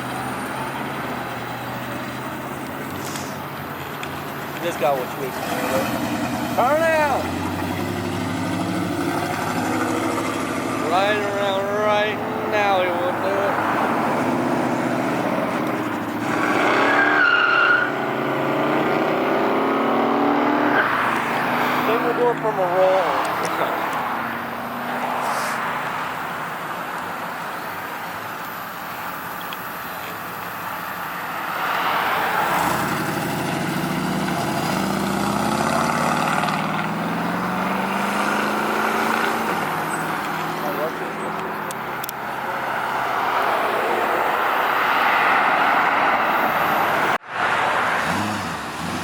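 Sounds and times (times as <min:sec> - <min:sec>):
car engine revving: 0:00.0 - 0:27.0, 0:31.4 - 0:49.0
tire squeal: 0:04.2 - 0:19.5, 0:31.4 - 0:41.4.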